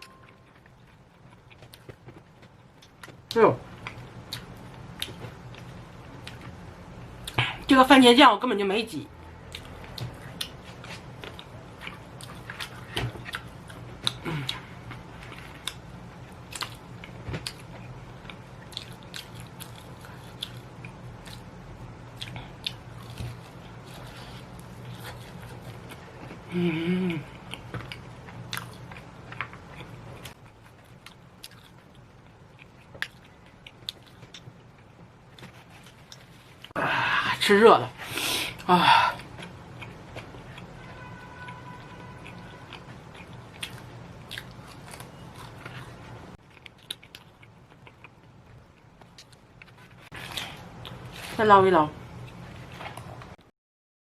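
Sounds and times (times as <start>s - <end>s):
chewing crispy fried chicken: 9.4s - 26.5s, 27.2s - 36.8s, 38.6s - 51.4s.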